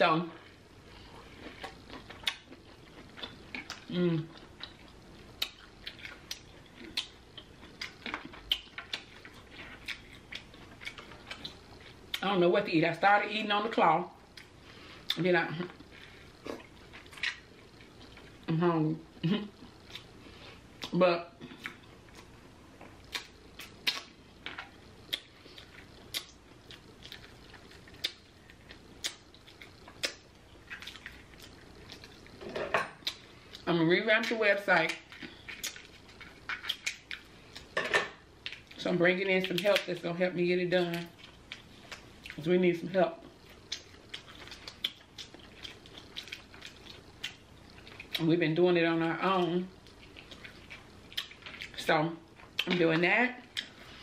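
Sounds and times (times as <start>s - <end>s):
chewing with wet mouth clicks: 1.4s - 12.3s, 16.5s - 18.4s, 19.8s - 20.1s, 20.8s - 32.4s, 33.0s - 37.7s, 38.4s - 38.8s, 43.3s - 48.3s, 49.7s - 51.8s, 53.5s - 53.8s
lip smacks: 23.0s - 24.1s.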